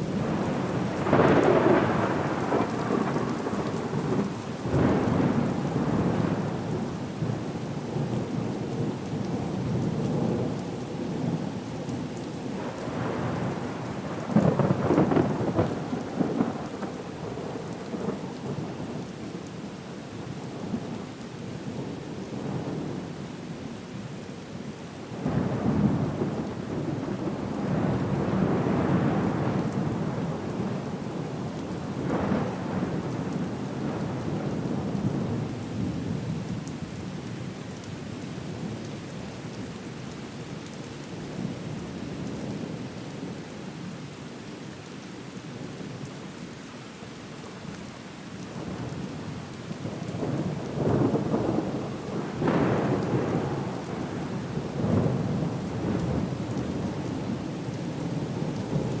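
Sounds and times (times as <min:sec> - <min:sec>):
steady rain: 0:00.0 - 0:59.0
rolling thunder: 0:12.9 - 0:16.7, 0:49.8 - 0:57.4.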